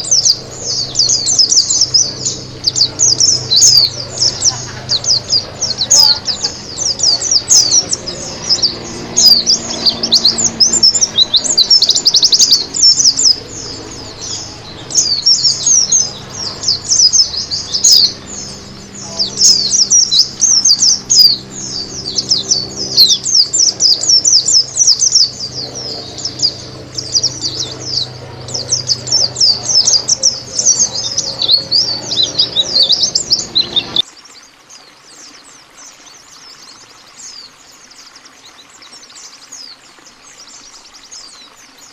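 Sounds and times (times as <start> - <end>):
bird twittering song: 0.0 - 41.9.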